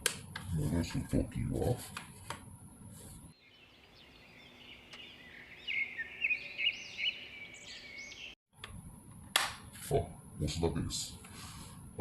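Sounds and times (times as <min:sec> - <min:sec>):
birds chirping: 0:03.4 - 0:08.4.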